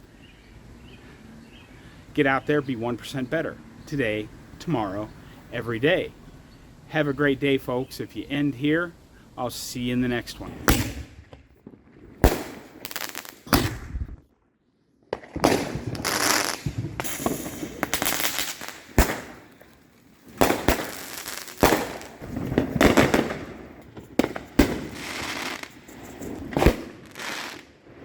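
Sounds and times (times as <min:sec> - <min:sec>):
fireworks bangs and crackling: 0:09.8 - 0:14.2, 0:15.1 - 0:28.0.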